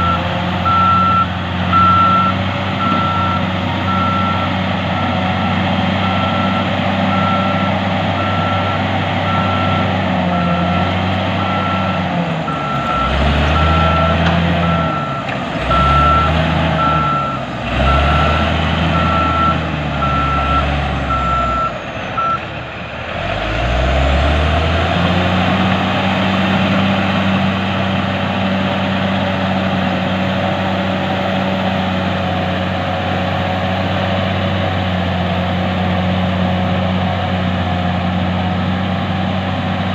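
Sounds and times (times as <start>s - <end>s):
heavy diesel machine engine: 0.0s - 39.9s
reverse alarm beeping: 11.4s - 22.4s.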